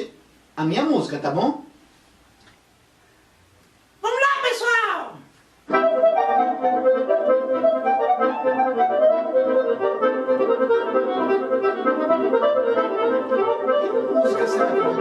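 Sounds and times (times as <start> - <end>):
accordion playing forro music: 5.7 - 15.0.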